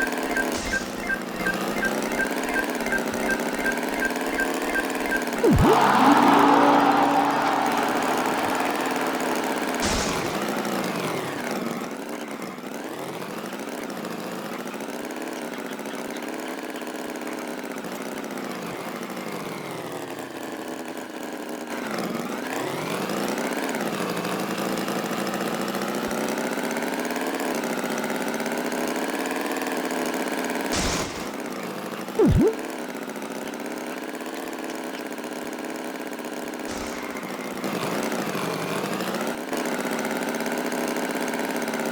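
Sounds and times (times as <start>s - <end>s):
tractor engine revving: 0.0s - 11.5s, 36.7s - 38.1s
short loud burst: 0.4s - 11.4s, 30.7s - 31.4s, 36.7s - 37.6s.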